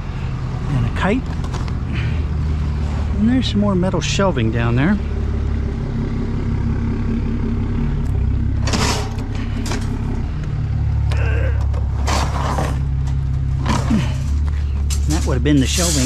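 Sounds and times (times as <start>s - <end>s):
vehicle engine idling: 0.0s - 16.0s
metal shelving scraping and clattering: 8.6s - 10.1s, 11.8s - 16.0s.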